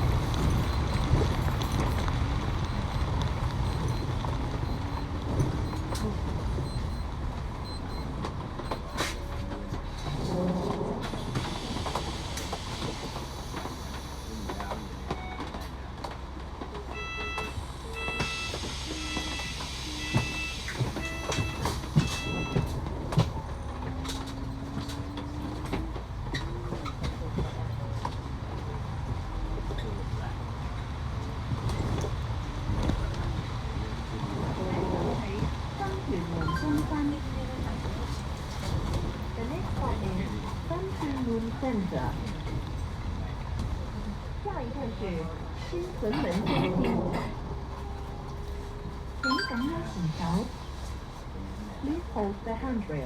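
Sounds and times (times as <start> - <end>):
train rumble inside carriage: 0.0 - 53.0
short electronic beeps: 2.7 - 9.1, 36.4 - 36.8, 49.2 - 50.0.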